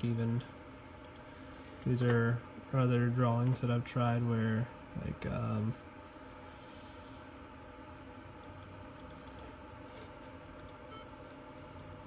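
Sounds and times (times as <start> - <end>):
low room hum: 0.0 - 12.0
computer mouse clicks: 1.0 - 1.2, 8.4 - 9.6, 10.4 - 12.0.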